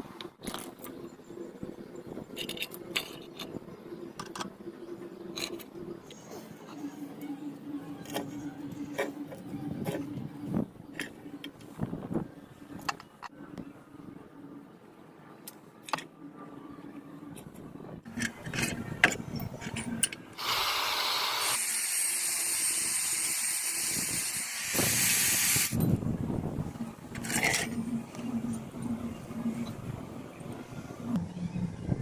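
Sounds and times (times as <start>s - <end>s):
steady hiss: 20.4s - 25.8s.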